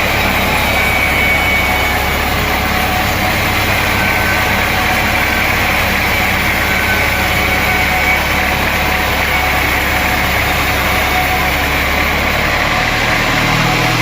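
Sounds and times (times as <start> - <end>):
sawmill machinery drone: 0.0 - 14.0.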